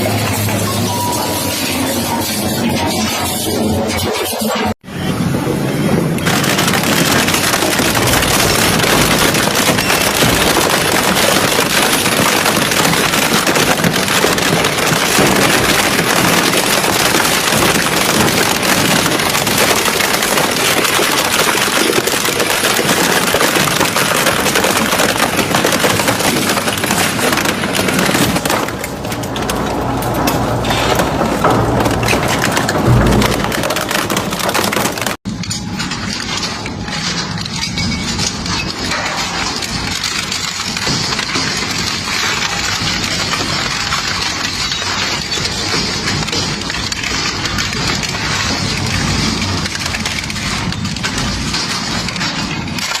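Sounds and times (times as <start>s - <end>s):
shredding machine grinding material: 6.2s - 35.2s.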